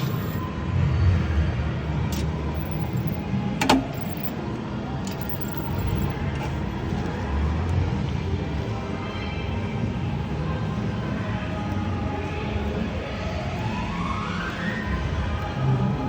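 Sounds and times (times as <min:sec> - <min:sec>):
slot machine sounds: 0:00.0 - 0:00.5, 0:02.6 - 0:03.2, 0:03.8 - 0:04.4, 0:05.1 - 0:06.2.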